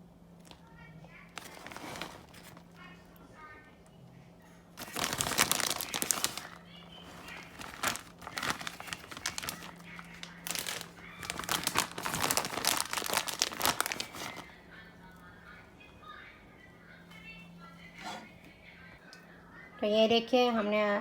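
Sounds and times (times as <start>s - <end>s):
plastic packet crinkling: 1.3s - 2.8s, 4.8s - 14.5s.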